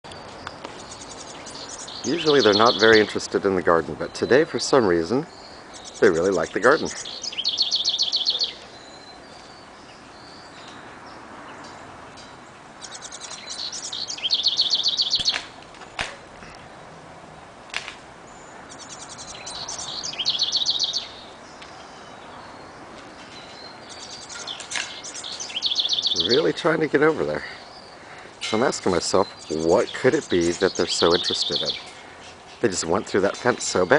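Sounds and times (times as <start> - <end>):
songbird trilling: 0.1 - 11.8, 12.8 - 15.6, 18.3 - 33.9
sharp clicks: 15.2 - 16.6.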